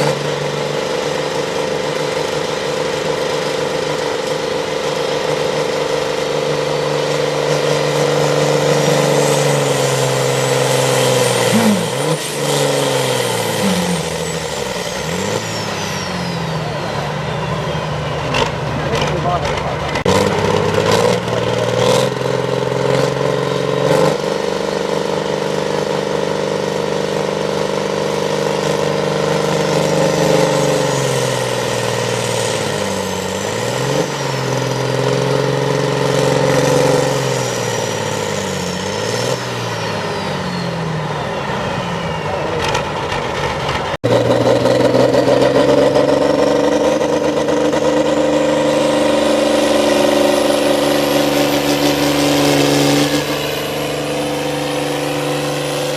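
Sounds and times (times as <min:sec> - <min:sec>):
tractor engine running hard: 0:00.0 - 0:55.9
high whine rising in pitch: 0:44.1 - 0:55.9.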